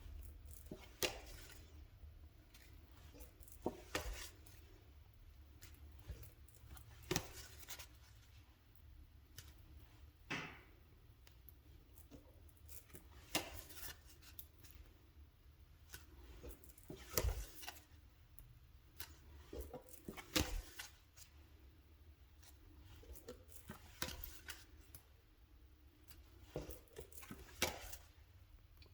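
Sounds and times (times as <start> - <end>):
playing cards snapping and rubbing: 0.6 - 1.6.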